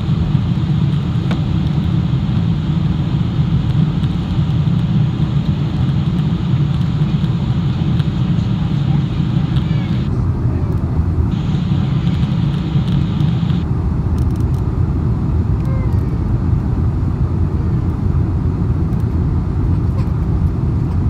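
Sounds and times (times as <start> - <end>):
high wind hiss: 11.0 - 14.2.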